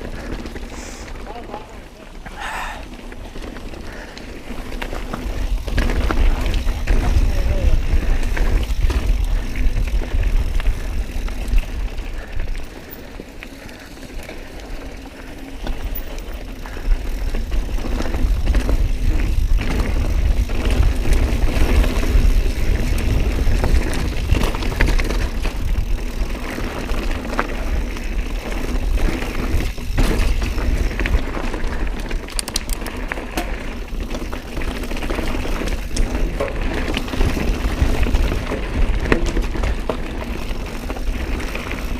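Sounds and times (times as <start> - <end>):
bike tyres and frame rattling: 0.0 - 41.9
wind buffeting microphone: 16.8 - 26.4.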